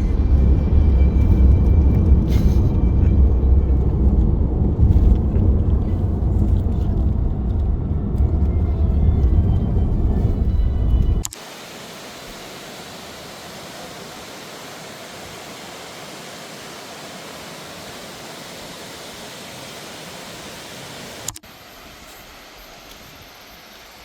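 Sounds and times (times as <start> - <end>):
loud low rumble: 0.0 - 11.2.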